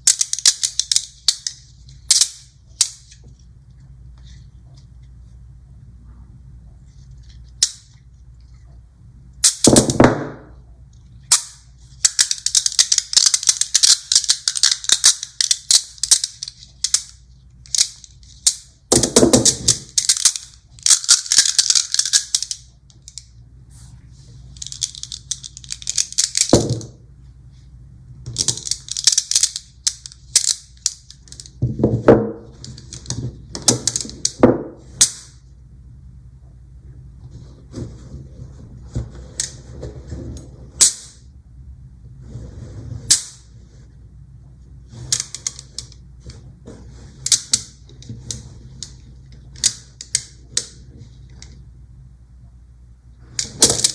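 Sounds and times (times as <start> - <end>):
magnet balls clicking: 0.0 - 3.2, 11.3 - 23.3, 24.5 - 26.9, 28.3 - 31.6, 32.6 - 34.4, 47.2 - 51.6
magnet balls snapping together: 0.0 - 3.2, 11.3 - 23.3, 24.6 - 27.0, 28.3 - 31.6, 32.6 - 34.4, 35.0 - 35.4, 47.2 - 50.8.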